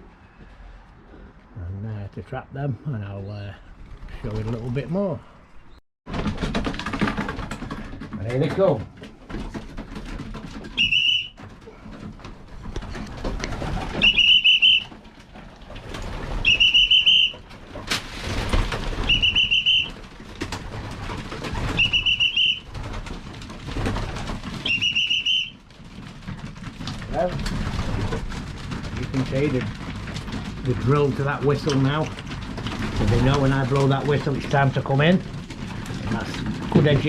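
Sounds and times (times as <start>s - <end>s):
high whistle blasts: 10.8s - 11.3s, 14.0s - 14.8s, 16.5s - 17.3s, 19.1s - 19.9s, 21.8s - 22.6s, 24.7s - 25.5s.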